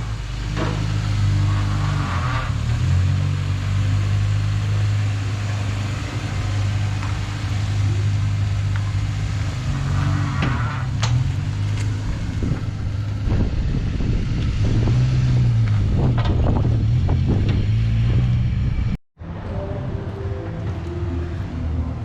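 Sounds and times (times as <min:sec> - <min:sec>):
rally car engine: 0:00.0 - 0:22.0
car knocks and clatters: 0:10.3 - 0:18.4.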